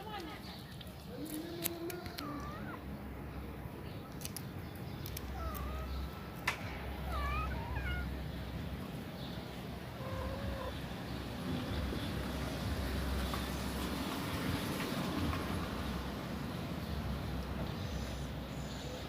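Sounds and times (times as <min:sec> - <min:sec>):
kittens mewing: 0:01.2 - 0:03.0, 0:05.0 - 0:08.6, 0:09.8 - 0:11.1.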